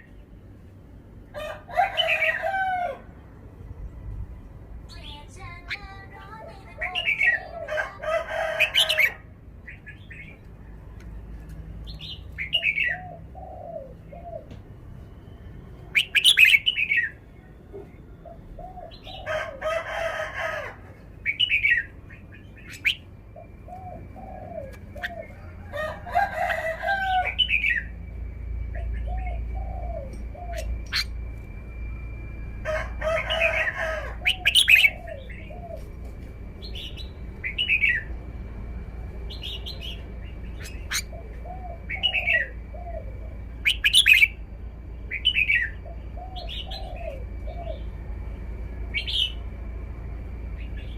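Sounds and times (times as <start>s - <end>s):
bird singing bright phrases: 4.9s - 7.6s, 15.3s - 18.1s
lower arched bird notes: 21.2s - 50.9s.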